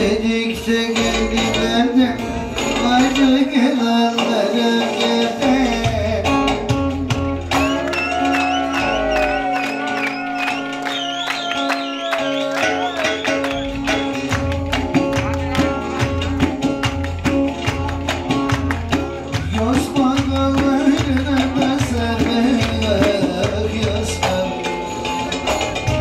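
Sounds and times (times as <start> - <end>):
plucked strings: 0.0 - 9.3, 12.5 - 26.0
low drum beat: 13.6 - 24.6.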